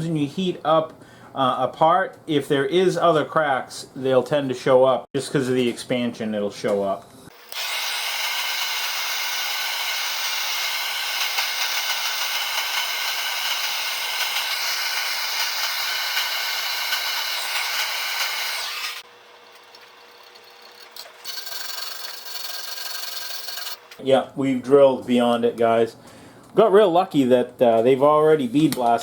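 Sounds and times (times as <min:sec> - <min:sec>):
electric drill whining: 0:07.3 - 0:20.0, 0:21.2 - 0:23.9.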